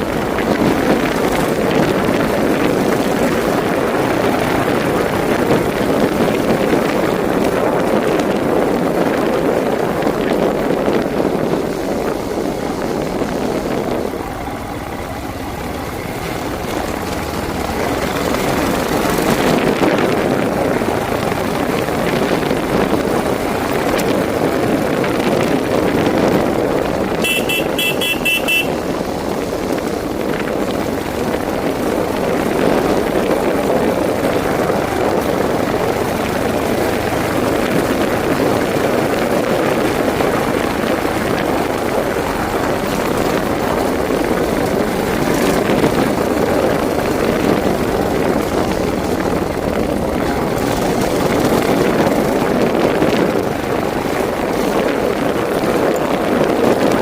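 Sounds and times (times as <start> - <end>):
motorcycle engine and road rumble: 0.0 - 57.0
wind on microphone: 0.0 - 57.0
vehicle horn short beeps: 27.2 - 28.9.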